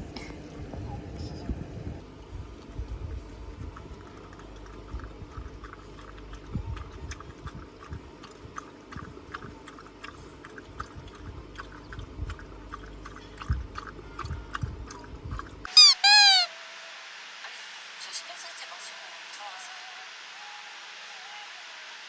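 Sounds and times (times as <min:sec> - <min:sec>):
crunchy chewing: 0:02.5 - 0:15.8
high squeaky calls: 0:15.7 - 0:16.6.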